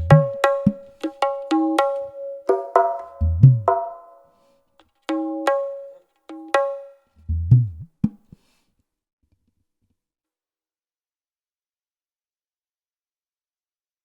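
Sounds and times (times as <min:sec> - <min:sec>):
hand drum strokes: 0:00.0 - 0:04.2, 0:05.1 - 0:08.4.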